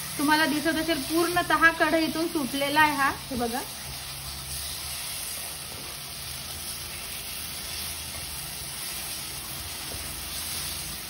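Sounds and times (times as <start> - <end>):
paste sizzling in a pan: 0.0 - 11.0.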